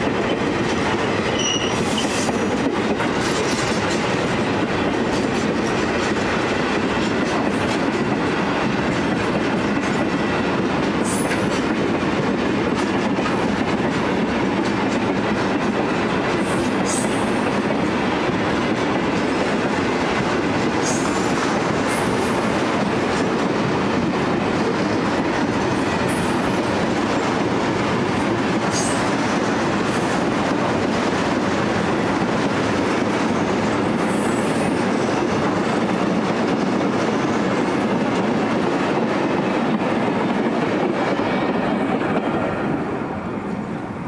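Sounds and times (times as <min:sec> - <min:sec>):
freight train wheels clattering: 0:00.0 - 0:43.8
high wheel squeals: 0:01.3 - 0:02.4.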